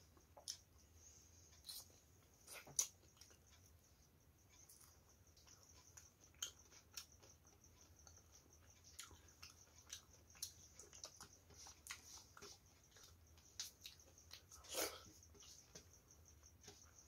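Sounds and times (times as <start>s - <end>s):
wet chewing: 8.9s - 15.0s.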